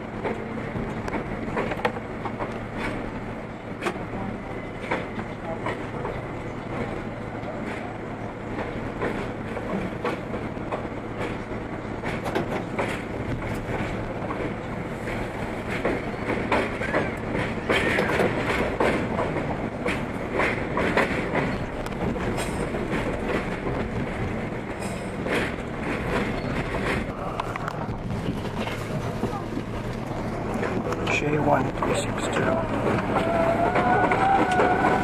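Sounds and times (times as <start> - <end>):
subway train running: 0.0 - 35.0
wheels clattering over rail joints: 12.0 - 35.0.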